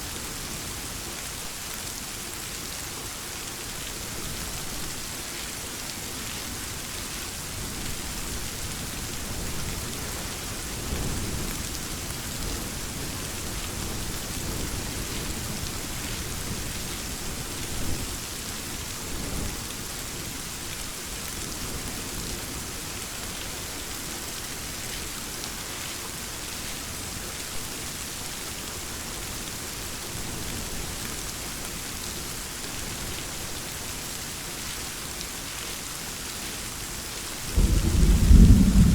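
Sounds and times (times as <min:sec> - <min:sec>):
steady rain hissing: 0:00.0 - 0:38.9
low rolling thunder: 0:37.5 - 0:38.9.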